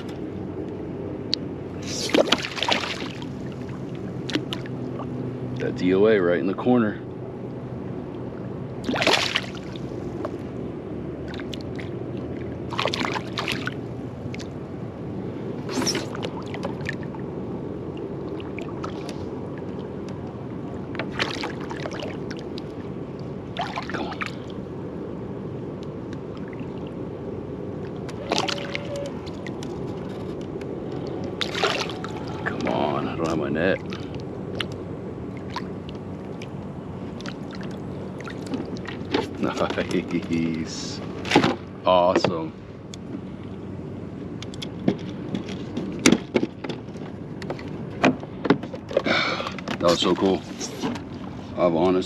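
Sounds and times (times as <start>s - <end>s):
water sloshing and gurgling: 1.3s - 5.8s, 7.2s - 43.6s, 44.6s - 51.6s
brief splashes: 1.9s - 3.3s, 8.8s - 9.8s, 12.7s - 13.8s, 21.1s - 22.4s, 23.6s - 24.5s, 28.2s - 29.0s, 31.4s - 32.5s.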